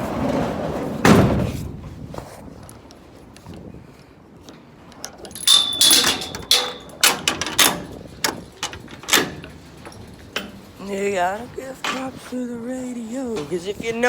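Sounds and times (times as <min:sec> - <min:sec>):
sharp knocks and clatters: 0:05.0 - 0:10.7.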